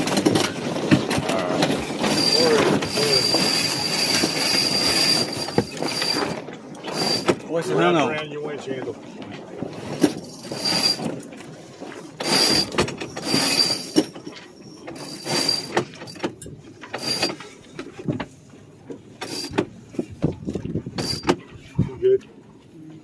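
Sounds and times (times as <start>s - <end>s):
winch ratcheting and clicking: 1.7s - 7.4s, 12.2s - 14.3s, 14.9s - 17.4s.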